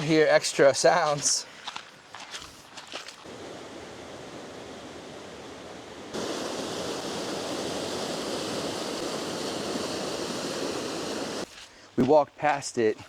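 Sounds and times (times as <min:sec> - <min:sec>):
creek water rushing: 0:03.2 - 0:11.5.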